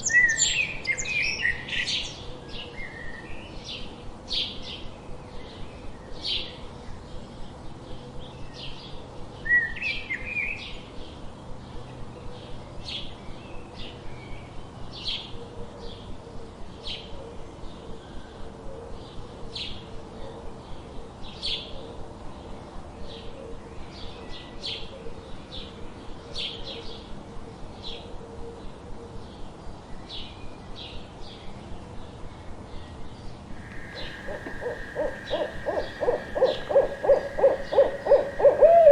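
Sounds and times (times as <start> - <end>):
loud rising bird call: 33.6 - 38.9
small songbirds chirping: 33.6 - 38.9.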